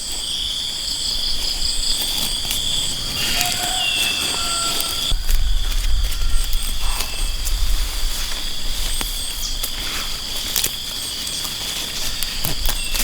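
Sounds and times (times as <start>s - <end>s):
low rumble: 5.1s - 9.0s.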